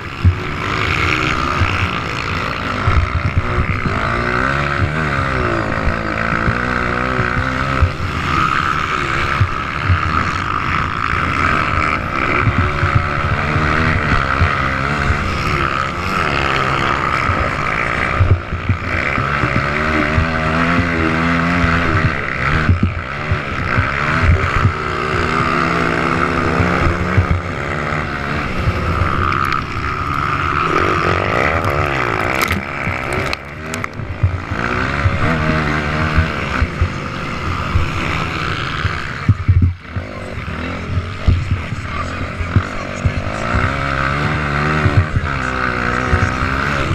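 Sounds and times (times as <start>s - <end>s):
motocross bike engines revving: 0.0s - 46.9s.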